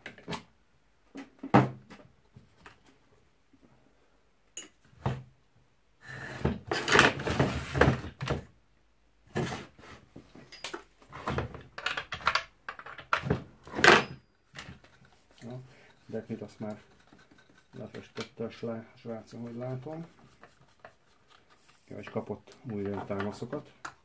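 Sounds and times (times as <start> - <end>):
metal parts and tools clattering: 10.4 - 10.9, 11.8 - 15.5.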